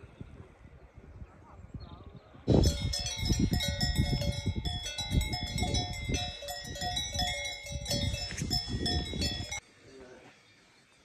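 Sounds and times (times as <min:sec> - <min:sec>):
livestock bells clanking: 0:02.5 - 0:09.6.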